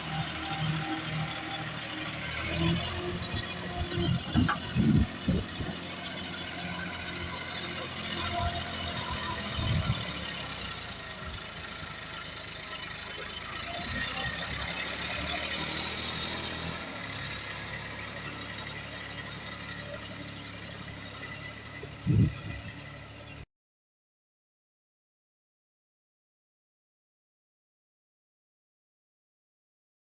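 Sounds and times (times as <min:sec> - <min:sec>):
tractor diesel engine running: 0:00.0 - 0:23.4.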